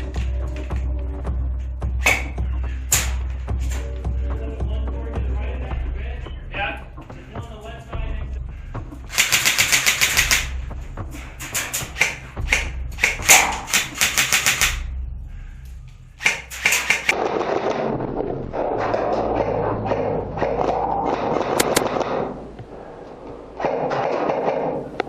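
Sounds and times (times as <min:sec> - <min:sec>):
airsoft guns firing bursts: 0:09.1 - 0:10.6, 0:11.6 - 0:14.8, 0:16.2 - 0:17.7.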